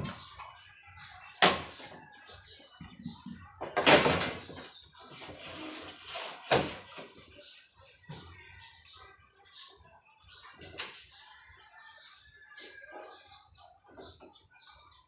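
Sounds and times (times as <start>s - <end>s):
boards knocking and banging: 3.6s - 4.7s.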